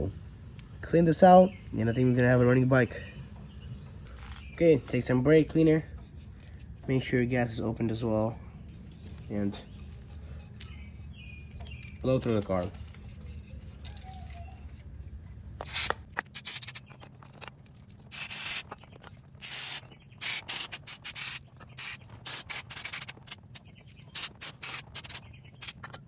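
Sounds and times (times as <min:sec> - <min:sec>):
aerosol spray hissing bursts: 0:15.7 - 0:16.8, 0:18.1 - 0:18.7, 0:19.4 - 0:23.6, 0:24.2 - 0:25.8.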